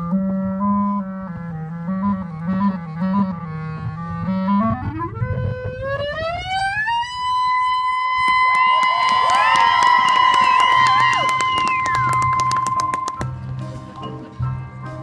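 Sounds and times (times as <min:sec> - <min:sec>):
marching band music: 0:10.8 - 0:15.0.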